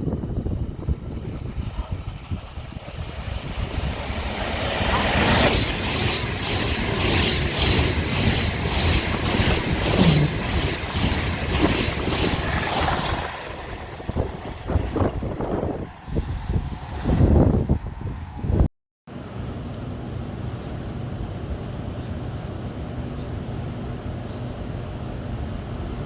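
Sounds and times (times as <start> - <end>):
wind buffeting microphone: 0.0 - 18.7.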